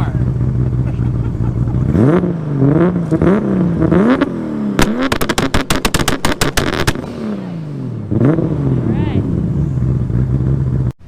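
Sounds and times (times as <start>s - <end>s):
car engine revving: 0.0s - 11.0s
sharp exhaust pops: 0.6s - 7.2s.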